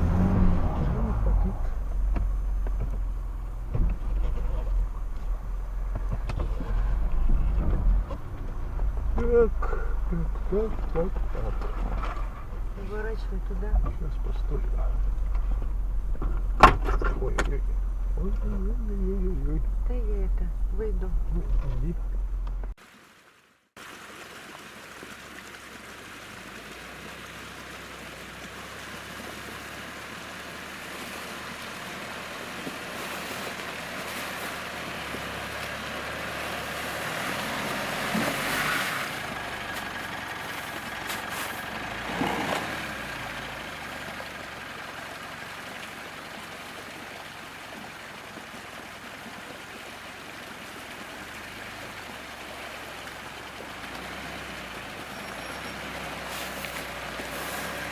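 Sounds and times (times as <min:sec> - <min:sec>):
suv engine running: 0:00.0 - 0:22.8, 0:24.5 - 0:57.9
tyres rushing through slush: 0:24.6 - 0:57.9.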